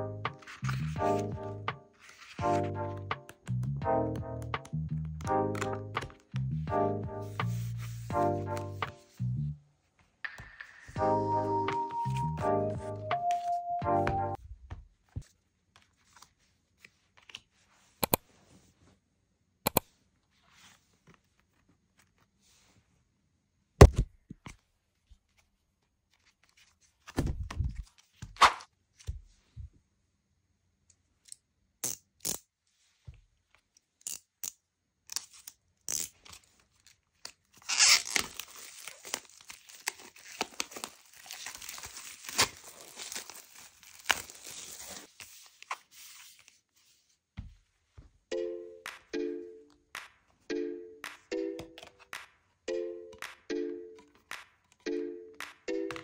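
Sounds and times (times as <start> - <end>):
card and cardboard album handled: 0.3 - 3.7, 4.4 - 6.5, 7.2 - 9.2, 13.2 - 17.8, 23.8 - 29.7, 36.1 - 48.2, 51.1 - 52.3
plastic shrink-wrap crinkling and tearing: 35.2 - 45.2.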